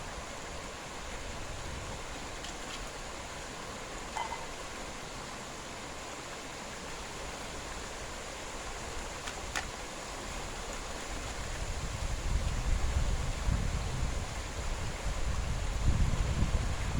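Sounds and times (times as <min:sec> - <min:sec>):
wind buffeting the microphone: 0:00.0 - 0:02.4, 0:10.1 - 0:16.9
outdoor night hiss: 0:00.0 - 0:16.9.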